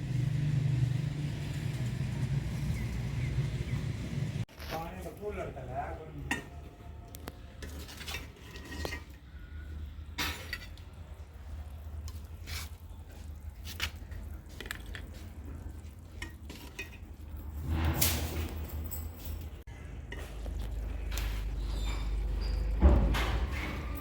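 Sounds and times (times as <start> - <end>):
metal spoon scraping a pot: 6.2 - 11.2, 12.0 - 12.9, 15.7 - 18.2.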